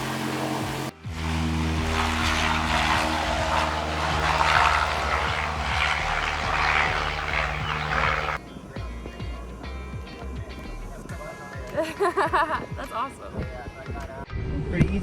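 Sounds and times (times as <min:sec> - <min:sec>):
aircraft engine droning: 0:00.0 - 0:08.8.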